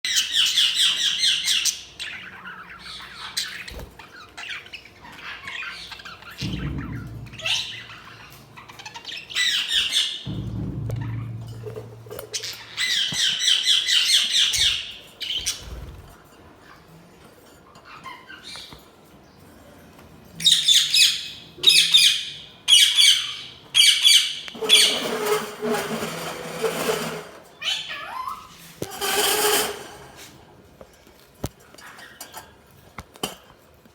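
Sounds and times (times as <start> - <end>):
budgies chirping and squawking: 0.1 - 10.3, 12.3 - 16.9.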